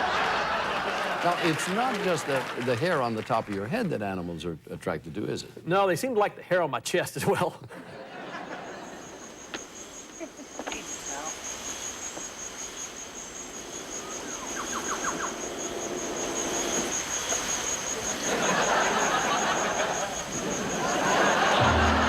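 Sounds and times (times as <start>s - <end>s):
insect chirps: 8.0s - 22.0s
insect pulsing trill: 8.7s - 21.8s.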